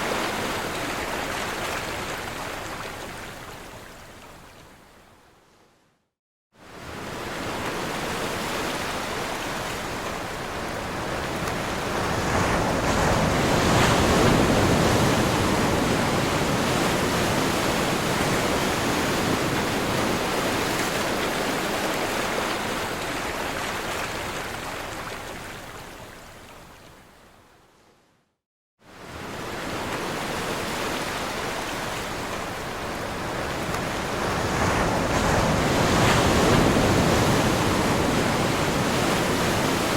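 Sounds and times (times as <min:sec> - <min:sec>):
ocean waves crashing: 0:06.8 - 0:25.2, 0:29.0 - 0:39.9.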